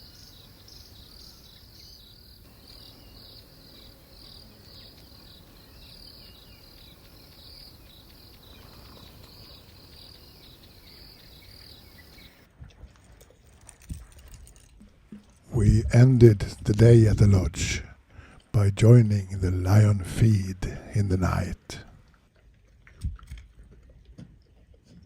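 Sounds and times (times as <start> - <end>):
insects chirping: 0.0 - 12.5.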